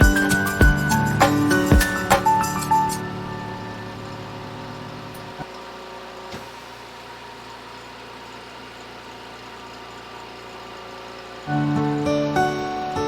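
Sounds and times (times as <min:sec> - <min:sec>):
background music: 0:00.0 - 0:05.2, 0:11.5 - 0:13.0.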